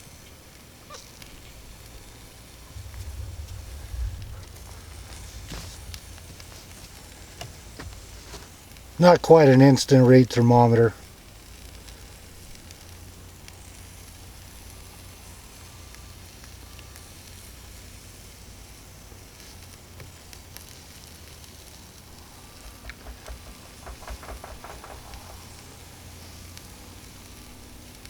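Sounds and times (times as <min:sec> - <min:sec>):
chicken sizzling on grill: 0:11.0 - 0:23.7
light knocks: 0:22.6 - 0:25.7.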